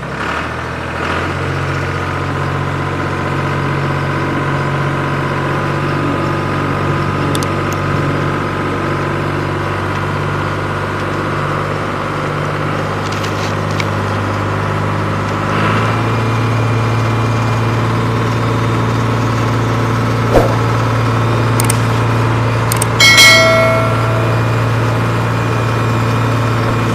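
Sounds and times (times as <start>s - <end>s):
engine-like drone: 0.0s - 26.9s
sharp click: 21.6s - 21.8s
ringing clang: 23.0s - 25.1s.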